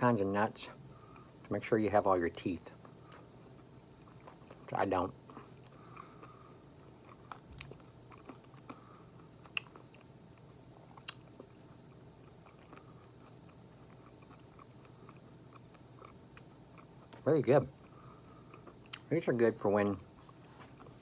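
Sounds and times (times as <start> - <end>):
chewing granola bar: 2.6 - 19.1.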